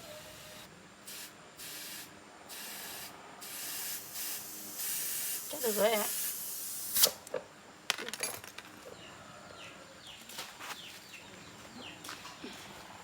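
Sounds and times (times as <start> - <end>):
spray hissing: 0.2 - 7.2.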